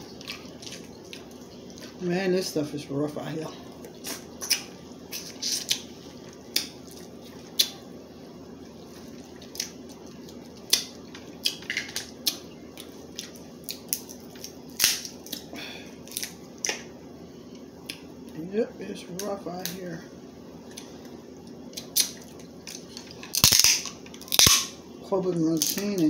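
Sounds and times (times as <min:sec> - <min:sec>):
steady low hum: 0:00.0 - 0:26.0
crab legs cracking: 0:09.4 - 0:15.5, 0:16.1 - 0:16.9, 0:21.7 - 0:24.8.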